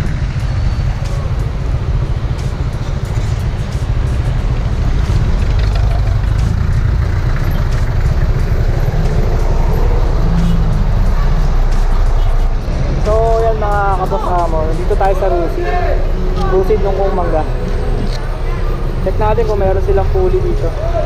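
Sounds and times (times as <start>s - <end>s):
wind rumble on microphone: 0.0s - 6.8s
motorcycle engine running: 0.0s - 21.0s.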